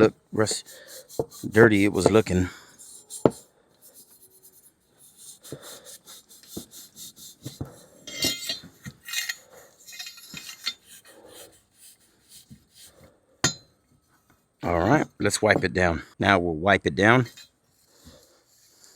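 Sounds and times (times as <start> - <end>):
scuff pad scrubbing metal: 0.0 - 9.3.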